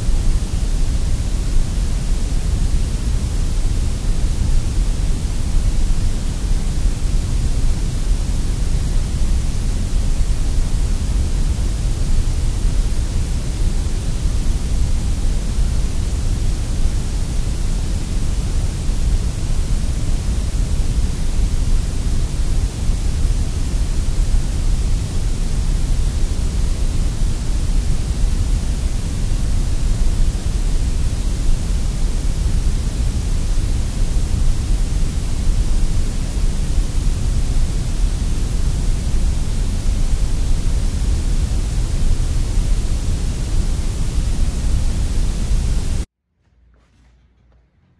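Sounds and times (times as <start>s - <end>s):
sandblaster rushing hiss: 0.0s - 46.1s.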